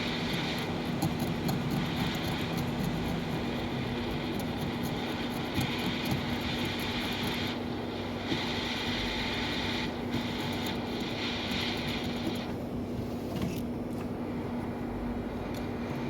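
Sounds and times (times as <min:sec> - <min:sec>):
hiss of moving air: 0:00.0 - 0:12.5
mechanical hum: 0:00.0 - 0:16.0.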